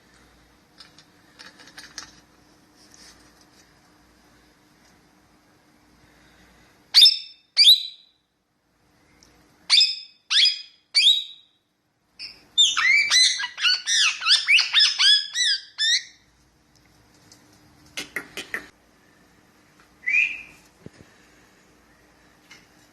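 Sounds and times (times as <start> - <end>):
parakeet calling: 9.7 - 11.5, 12.2 - 16.2, 20.0 - 20.6.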